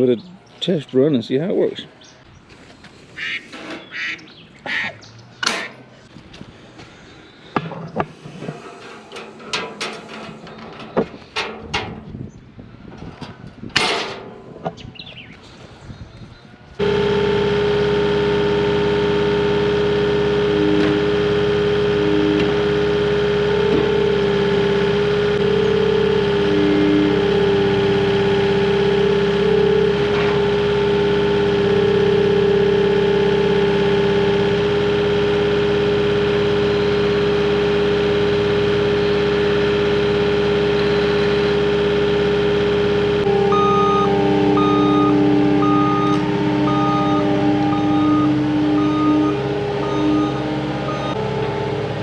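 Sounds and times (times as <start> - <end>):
diesel engine running: 0.0 - 52.0
backup alarm beeping: 43.2 - 52.0.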